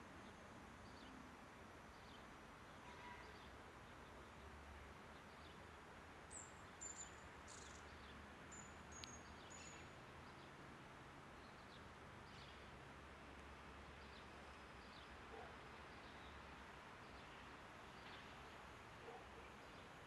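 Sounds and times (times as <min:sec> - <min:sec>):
faint tick: 0:09.0 - 0:09.2.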